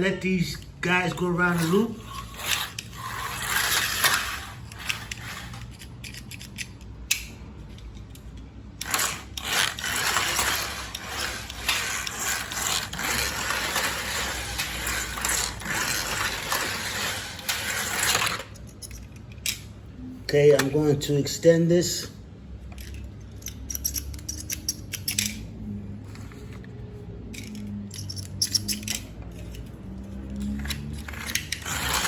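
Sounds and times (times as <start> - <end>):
slot car motors whirring: 1.1 - 6.5, 8.7 - 18.6, 28.8 - 32.0.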